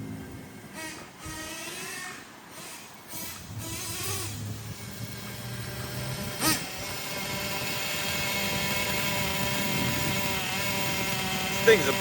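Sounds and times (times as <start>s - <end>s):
nitro engine idling: 3.0s - 12.0s.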